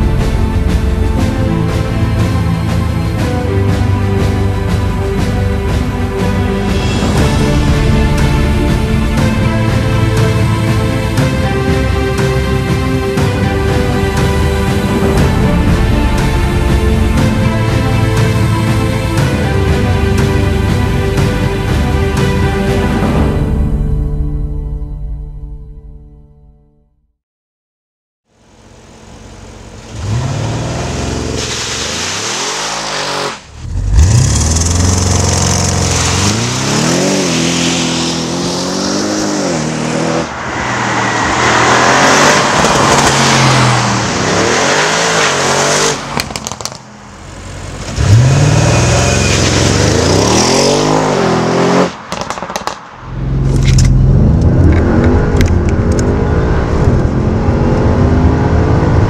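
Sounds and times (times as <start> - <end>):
car engine revving and accelerating: 28.6 - 59.0.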